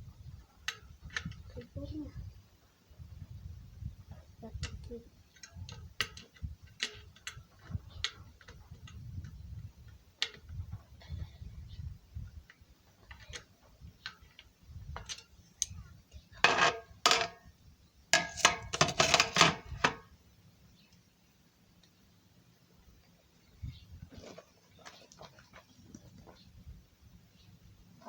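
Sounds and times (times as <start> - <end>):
metal clicking on a bicycle: 0.6 - 1.7, 4.4 - 10.7, 12.4 - 15.8
metal rattling and scraping: 16.3 - 17.4, 18.2 - 20.0.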